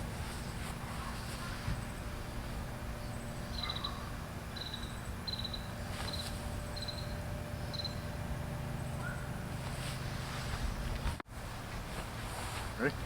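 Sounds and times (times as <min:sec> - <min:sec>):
low background rumble: 0:00.0 - 0:13.0
cricket chirping: 0:04.6 - 0:08.1.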